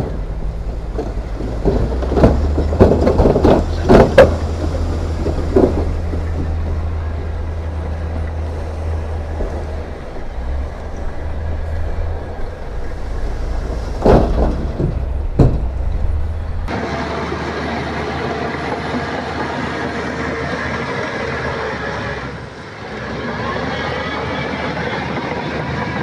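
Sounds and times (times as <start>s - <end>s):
diesel machinery rumbling: 0.0s - 26.0s
steady engine drone: 0.0s - 26.0s
loud bangs: 12.8s - 22.6s.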